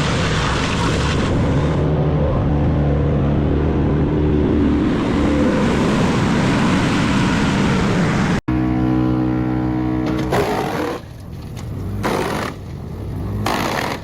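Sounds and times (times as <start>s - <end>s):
loud rushing noise: 0.0s - 8.8s.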